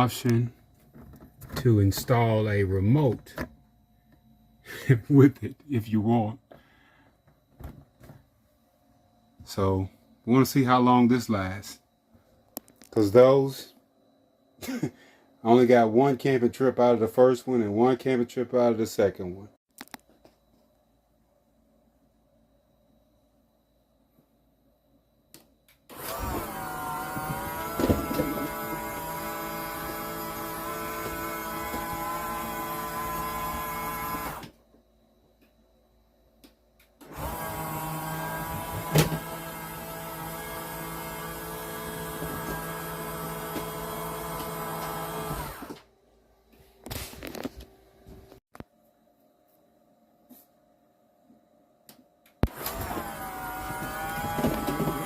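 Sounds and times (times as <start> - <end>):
motors whining: 25.9 - 34.6, 37.0 - 45.9, 52.4 - 55.0.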